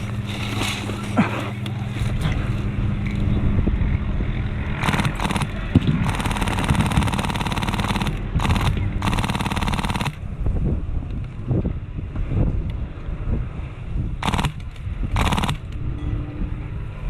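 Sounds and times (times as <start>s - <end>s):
airsoft gun firing rapid clicks: 4.8s - 10.2s, 14.2s - 15.7s.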